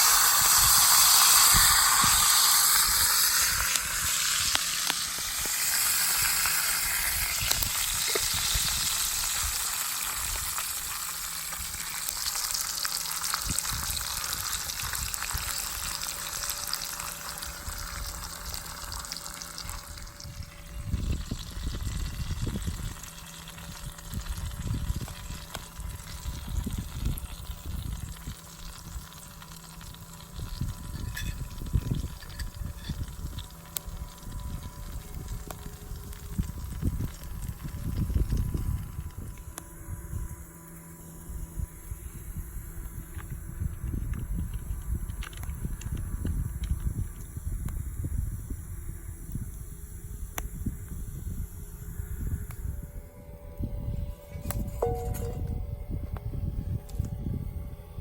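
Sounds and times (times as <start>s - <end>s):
steak sizzling: 0.0s - 20.0s
low rumbling: 51.6s - 58.0s.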